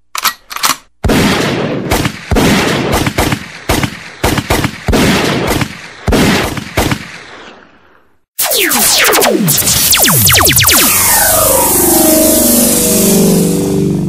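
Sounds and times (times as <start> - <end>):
loud sharp bangs with echo: 1.0 - 7.4.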